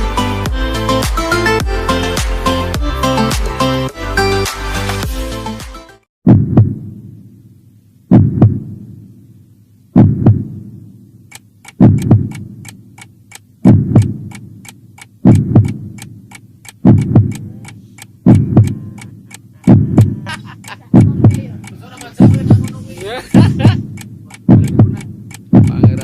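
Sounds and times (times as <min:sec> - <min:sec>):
heartbeat thumps: 0:06.3 - 0:06.9, 0:08.1 - 0:08.8, 0:10.0 - 0:10.6, 0:11.7 - 0:12.5, 0:13.6 - 0:14.4, 0:15.2 - 0:16.0, 0:16.7 - 0:26.0
fast clock ticking: 0:11.3 - 0:26.0.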